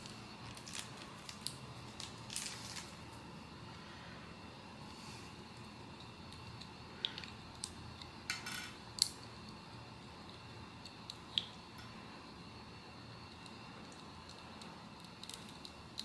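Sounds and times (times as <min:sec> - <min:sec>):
packaging crinkle: 0:00.0 - 0:03.0.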